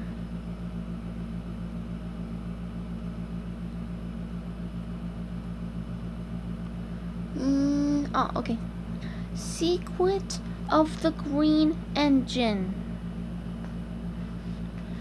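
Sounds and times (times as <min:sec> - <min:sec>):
low machine hum: 0:00.0 - 0:15.0
person speaking: 0:07.4 - 0:08.6, 0:09.4 - 0:12.8.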